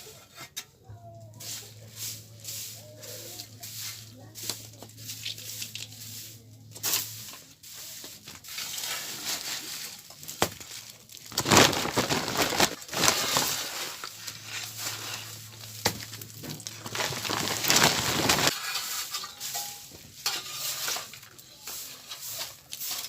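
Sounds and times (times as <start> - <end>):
crunching handling noises: 8.9 - 18.6.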